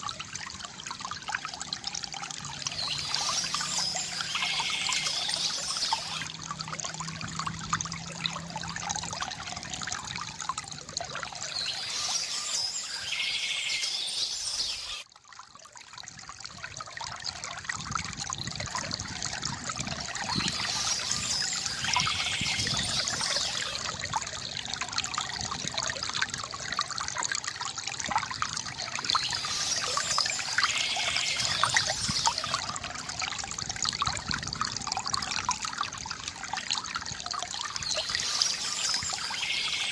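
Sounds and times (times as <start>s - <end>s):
water trickling from fountain: 0.0s - 39.9s
birds chirping: 2.8s - 6.3s, 11.5s - 15.0s, 20.3s - 23.8s, 29.2s - 32.6s, 37.8s - 39.9s.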